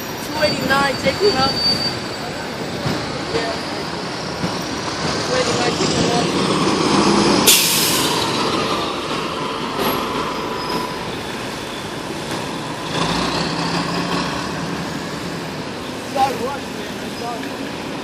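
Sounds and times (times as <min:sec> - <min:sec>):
air brake hiss: 0:07.4 - 0:08.2.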